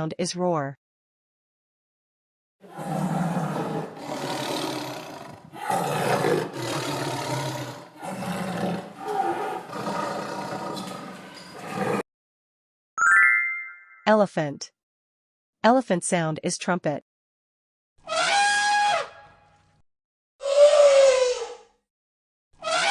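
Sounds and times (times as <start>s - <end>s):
tiger roaring: 2.6s - 12.0s.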